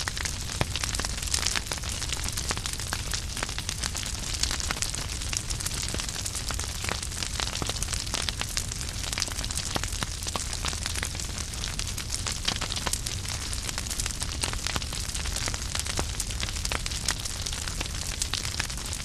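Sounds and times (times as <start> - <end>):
fire pops and snaps: 0.0 - 19.0
wood fire crackling: 0.0 - 19.0.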